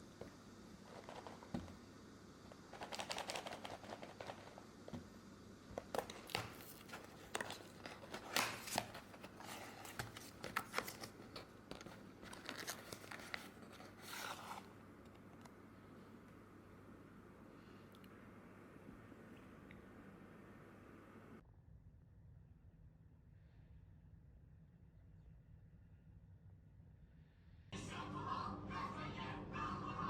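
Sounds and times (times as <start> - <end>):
crinkling and tearing wrapper: 5.9 - 14.6.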